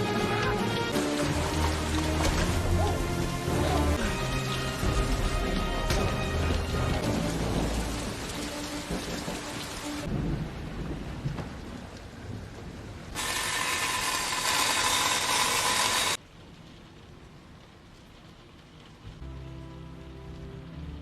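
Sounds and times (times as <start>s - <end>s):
heavy rain and thunder: 0.0s - 13.6s.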